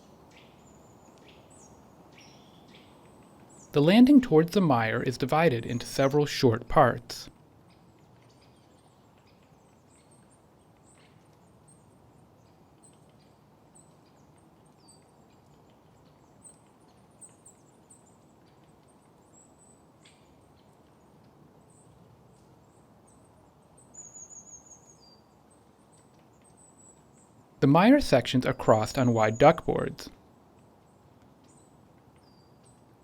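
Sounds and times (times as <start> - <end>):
soft low hiss: 0.0 - 33.0
birds chirping: 3.5 - 7.3, 27.6 - 30.2.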